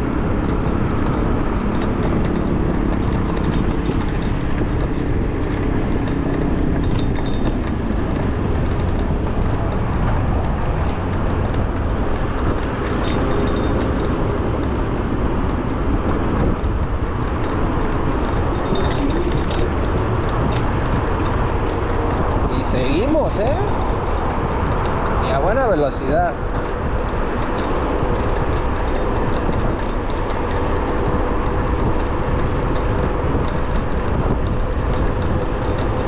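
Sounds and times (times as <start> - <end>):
road and traffic rumble: 0.0 - 36.0.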